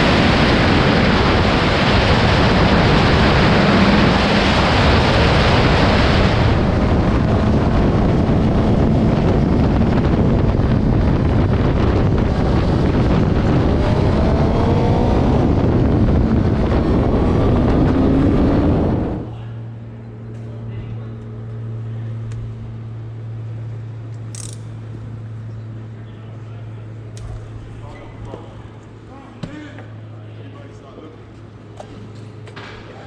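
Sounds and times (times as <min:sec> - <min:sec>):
wind rushing over microphone: 0:00.0 - 0:19.8
motorcycle engine: 0:00.0 - 0:25.6.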